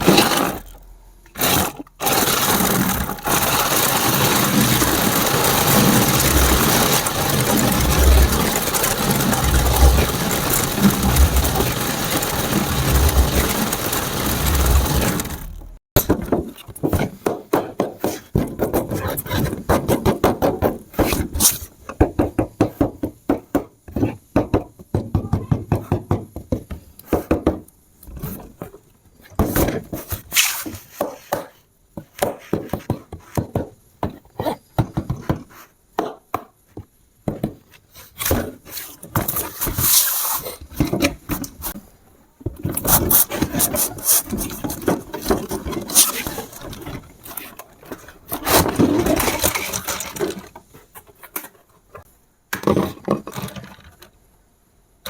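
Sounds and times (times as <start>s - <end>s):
plastic clicking and rattling: 0.0s - 15.8s
toy engine idle sound effect: 1.5s - 15.6s.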